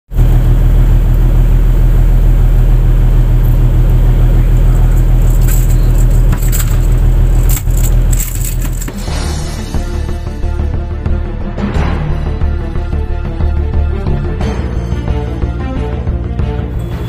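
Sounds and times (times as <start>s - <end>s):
boat engine droning: 0.1s - 9.0s, 16.3s - 17.0s.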